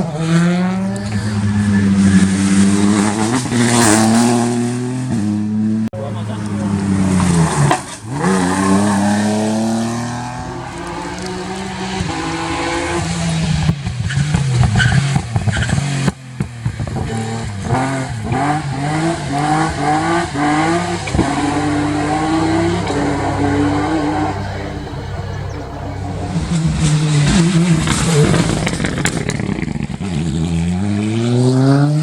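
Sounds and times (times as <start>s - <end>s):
rally car engine revving: 0.0s - 5.2s, 6.0s - 32.0s
sharp exhaust cracks: 0.6s - 4.3s, 6.0s - 15.2s, 17.6s - 30.0s.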